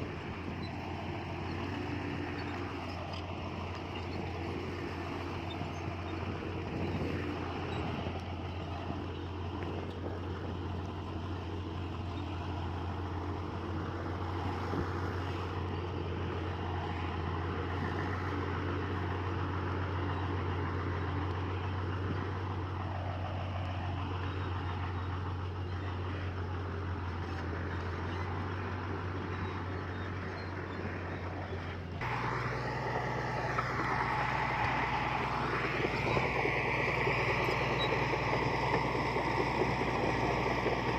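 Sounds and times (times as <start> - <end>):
machine squealing: 0.0 - 8.1, 34.0 - 40.9
heavy diesel machinery engine: 0.0 - 40.9.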